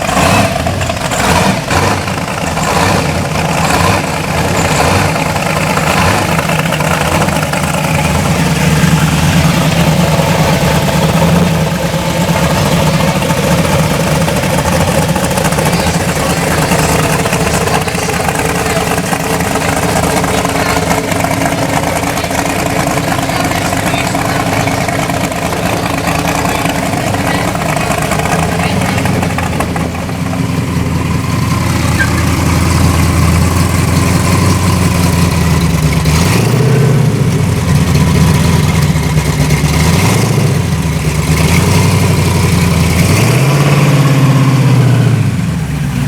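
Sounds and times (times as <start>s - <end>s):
vehicle engine idling: 0.0s - 46.0s
background voices: 3.1s - 34.0s.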